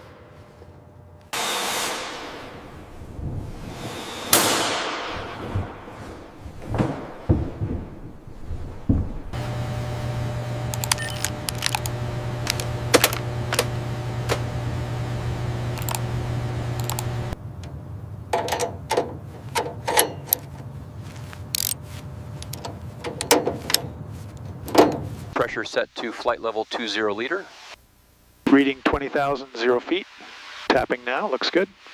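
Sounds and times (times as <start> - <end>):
steady low hum: 0.0 - 30.3
knocks: 4.4 - 9.4
sharp clicks and taps: 10.7 - 13.7, 15.8 - 16.0, 22.4 - 23.9.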